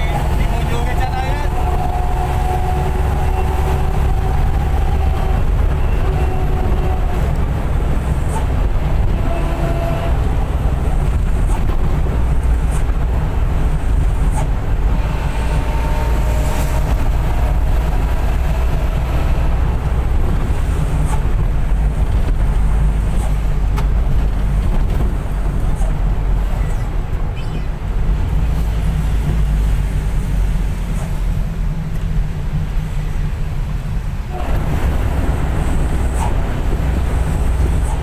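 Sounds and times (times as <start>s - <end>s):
bus engine rumble: 0.0s - 38.0s
road and cabin noise: 0.0s - 38.0s.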